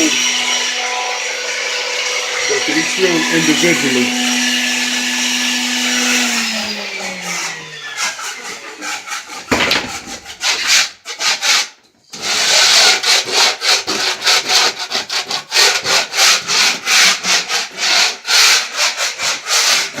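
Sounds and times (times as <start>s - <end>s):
power tool spinning down: 0.0s - 8.6s
sandpaper rubbing: 2.4s - 5.1s, 6.0s - 20.0s.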